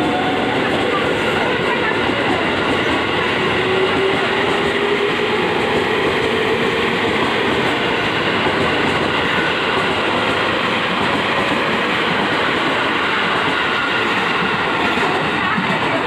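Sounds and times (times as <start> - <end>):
train wheels on rails passing: 0.0 - 16.0.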